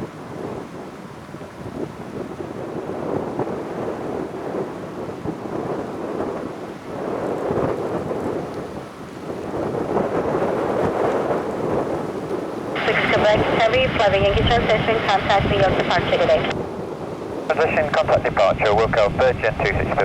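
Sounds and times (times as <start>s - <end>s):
jet engine roar: 12.8s - 16.6s, 17.5s - 20.0s.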